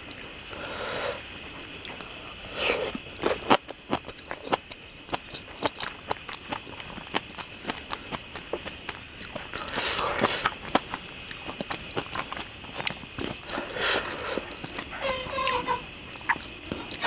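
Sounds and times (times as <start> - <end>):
mouth clicks and smacks chewing: 2.8 - 15.6, 16.2 - 17.0.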